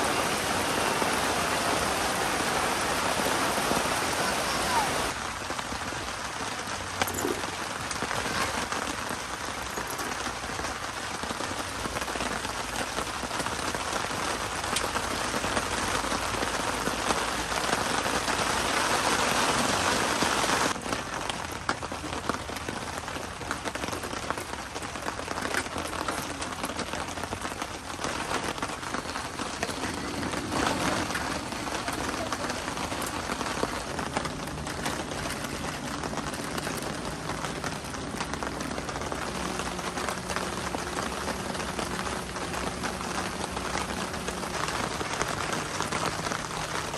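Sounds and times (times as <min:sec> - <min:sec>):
rain falling: 0:00.0 - 0:46.9.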